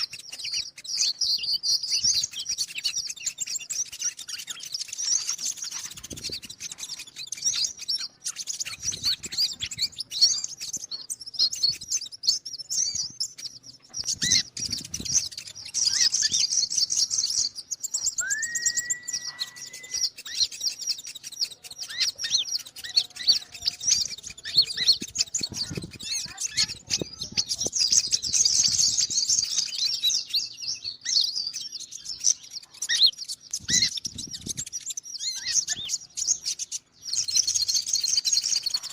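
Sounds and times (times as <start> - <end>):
bird chirps and trills: 0.0 - 38.9
short steady bird whistle: 18.0 - 20.5.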